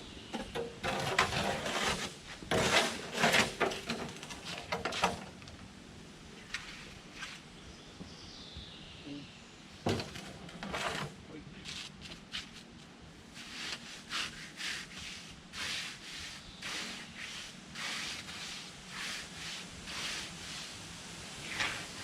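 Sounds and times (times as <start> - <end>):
clattering and knocks: 0.3 - 5.6, 9.8 - 11.2.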